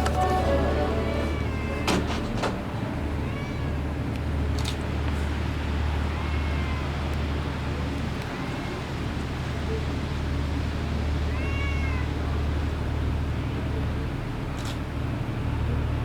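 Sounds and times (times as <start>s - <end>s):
cat meowing: 1.4s - 1.8s, 6.1s - 6.9s, 11.3s - 12.1s.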